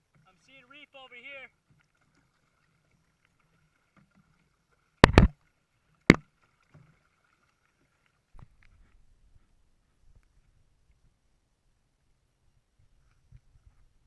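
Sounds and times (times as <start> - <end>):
sharp knocks on a kayak: 5.0 - 5.4.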